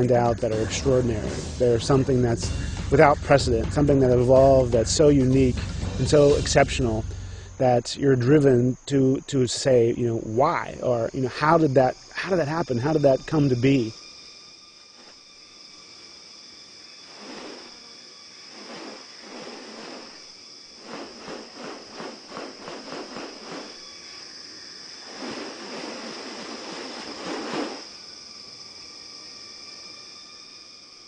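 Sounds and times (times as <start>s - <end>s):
insects droning: 0.0s - 31.0s
insect rasping bursts: 9.8s - 31.0s.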